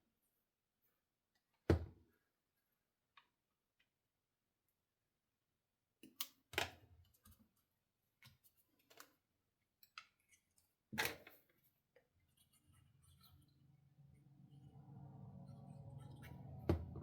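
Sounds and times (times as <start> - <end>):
knocks on a desk: 16.7 - 17.0.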